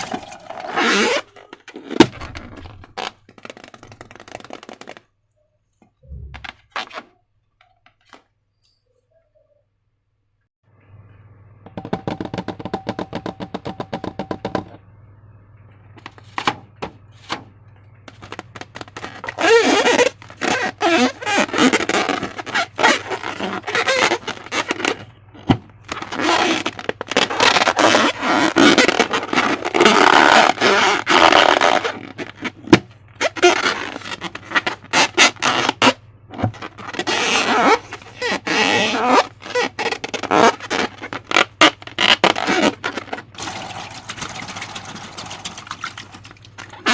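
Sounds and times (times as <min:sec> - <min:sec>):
squeaky rubbing tone: 0:00.0 - 0:05.0, 0:18.2 - 0:25.1, 0:25.9 - 0:46.9.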